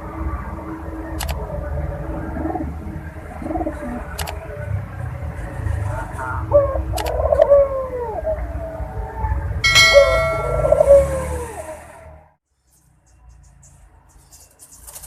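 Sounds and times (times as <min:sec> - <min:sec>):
dove cooing: 0:01.5 - 0:04.5, 0:06.4 - 0:11.7
short metallic ring: 0:09.6 - 0:11.2.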